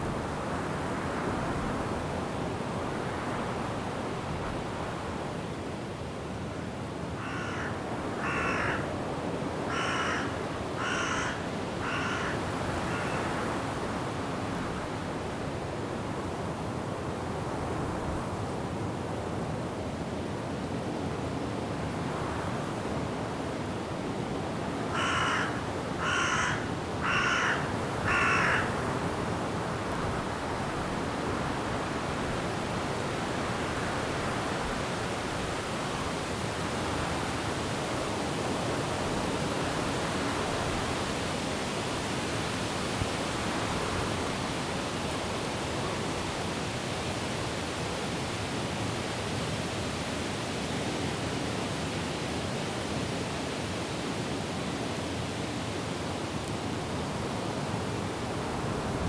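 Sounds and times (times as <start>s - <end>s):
wind in trees: 0.0s - 59.0s
crow cawing harshly: 7.2s - 8.9s, 9.7s - 13.4s, 24.9s - 28.8s.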